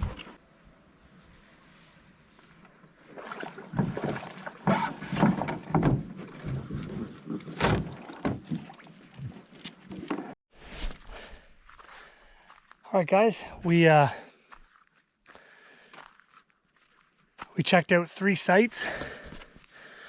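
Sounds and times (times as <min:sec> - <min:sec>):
canoe paddle splashes and knocks: 0:03.0 - 0:10.4.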